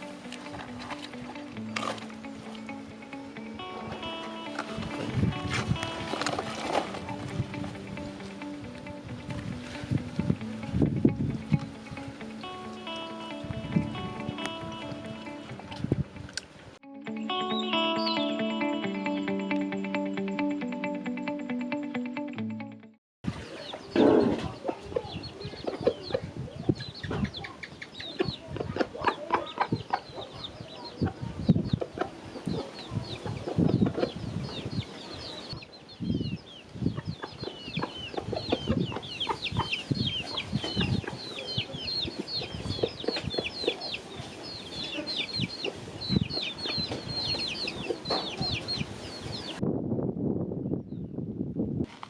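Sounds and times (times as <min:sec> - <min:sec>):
chickens clucking: 0:00.0 - 0:10.7, 0:23.4 - 0:35.7, 0:36.8 - 0:49.6
high-pitched chirps: 0:00.0 - 0:16.0, 0:16.9 - 0:22.6.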